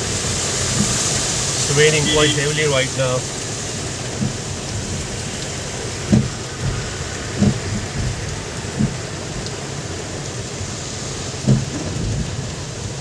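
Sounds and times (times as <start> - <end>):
heavy rain falling: 0.0 - 13.0
short low thumps: 6.0 - 9.1, 11.4 - 12.4.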